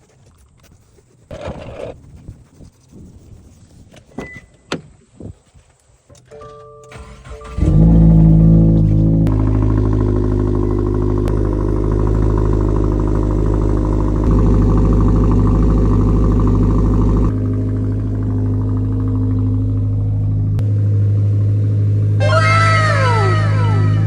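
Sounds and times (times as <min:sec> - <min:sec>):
car engine idling: 0:06.9 - 0:24.0.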